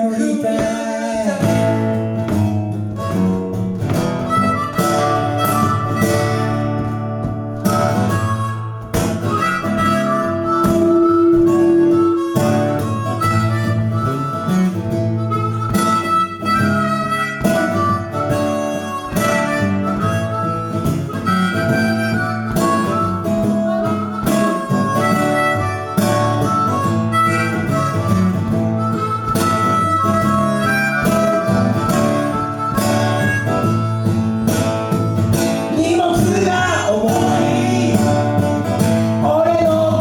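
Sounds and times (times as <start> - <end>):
strummed guitar: 0.0 - 40.0
harmonica solo: 1.3 - 40.0.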